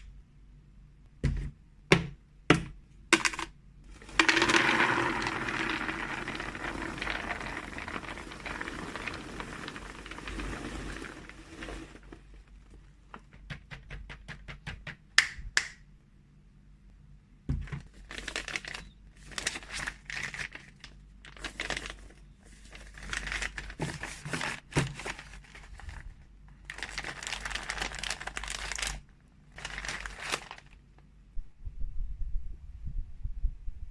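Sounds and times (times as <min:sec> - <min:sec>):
plastic packaging crinkling: 0:03.9 - 0:13.3, 0:17.6 - 0:30.9.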